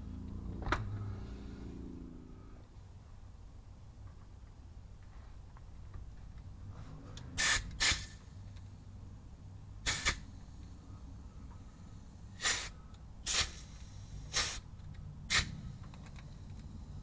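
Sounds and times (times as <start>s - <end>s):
pneumatic grease gun hissing bursts: 7.4s - 8.4s, 9.8s - 10.7s, 11.7s - 15.9s.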